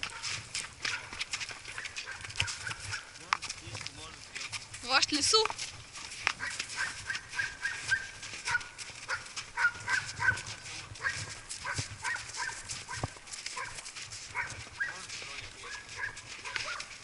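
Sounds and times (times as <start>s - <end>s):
dog barking: 0.1s - 0.3s, 0.9s - 1.1s, 1.7s - 3.1s, 6.4s - 17.0s.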